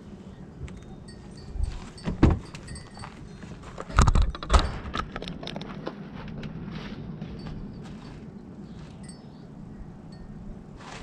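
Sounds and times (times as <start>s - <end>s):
parts knocking and clicking: 2.0s - 6.5s.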